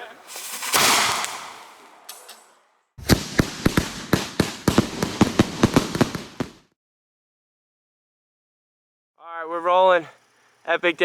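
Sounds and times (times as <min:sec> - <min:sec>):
firecrackers popping: 0:00.0 - 0:02.4, 0:03.0 - 0:06.7.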